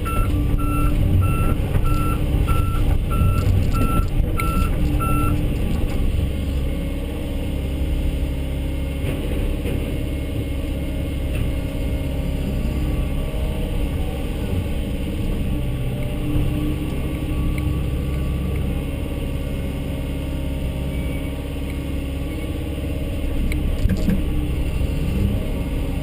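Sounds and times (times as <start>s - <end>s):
backup alarm beeping: 0.0s - 5.4s
excavator diesel engine running: 0.0s - 26.0s.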